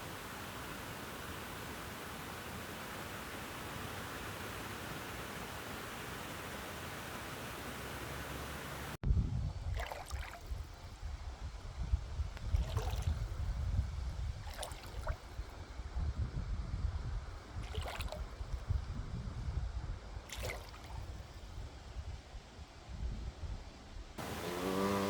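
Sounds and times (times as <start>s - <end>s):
steady hiss: 0.0s - 9.0s, 24.2s - 25.0s
wind buffeting microphone: 9.0s - 22.3s
water gurgling and lapping: 9.6s - 10.8s, 12.4s - 13.6s, 14.3s - 15.6s, 17.5s - 18.8s, 20.2s - 21.2s.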